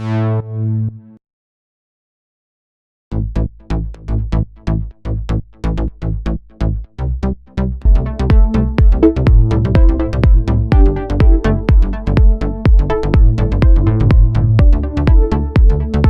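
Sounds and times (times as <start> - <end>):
pulsing synth bass: 0.0 - 1.2, 3.1 - 16.0
kick drum: 7.8 - 16.0.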